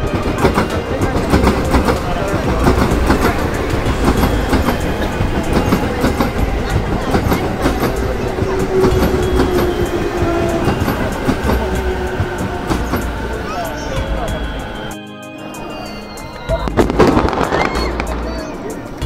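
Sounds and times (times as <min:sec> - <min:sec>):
train wheels clicking over rail joints: 0:00.0 - 0:14.8.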